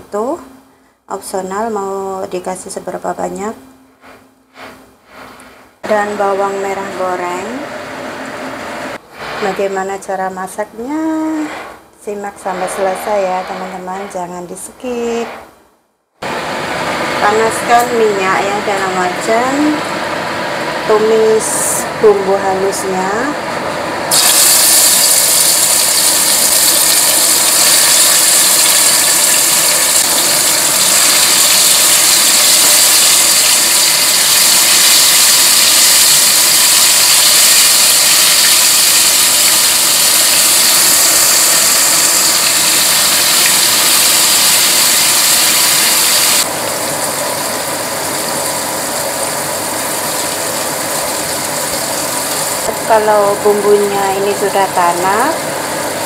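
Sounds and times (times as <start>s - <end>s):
spice paste sizzling in oil: 24.1s - 54.6s.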